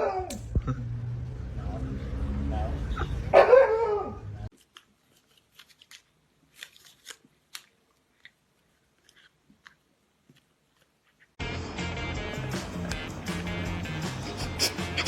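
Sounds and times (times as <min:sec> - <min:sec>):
small clicks and crunches: 0:04.5 - 0:11.4.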